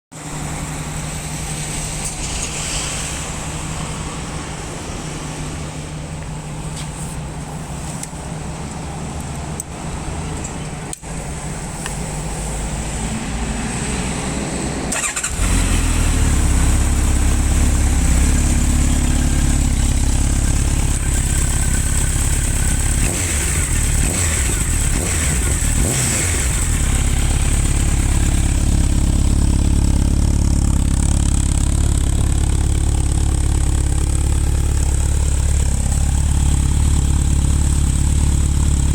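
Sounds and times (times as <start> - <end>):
motorcycle engine idling: 16.2 - 38.9.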